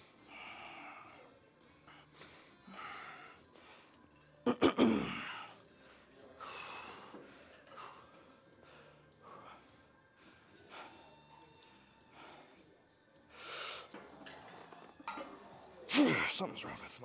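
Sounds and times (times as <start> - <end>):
man breathing hard: 6.4 - 11.2.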